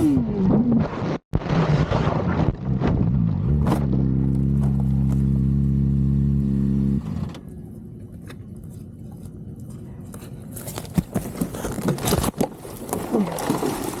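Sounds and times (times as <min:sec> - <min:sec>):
vehicle engine running: 0:02.7 - 0:10.4.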